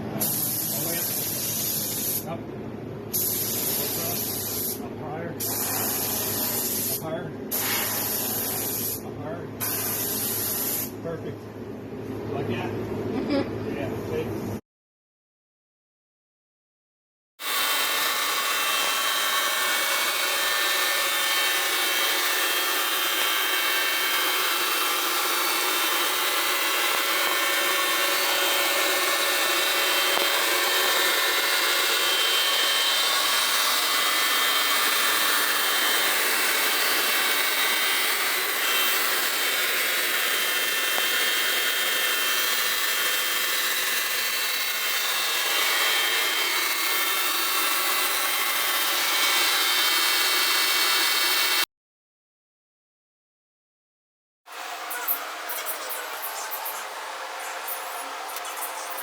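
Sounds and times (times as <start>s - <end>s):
power tool whining: 17.4s - 51.6s, 54.5s - 59.0s.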